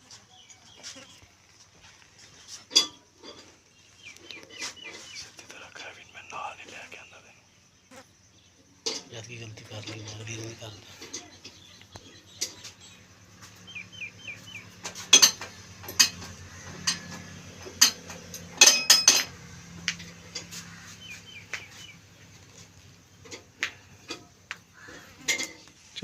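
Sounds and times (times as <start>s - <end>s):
small bird chirping: 0.1s - 25.3s
sharp metallic clanks: 2.5s - 3.6s, 14.2s - 21.8s.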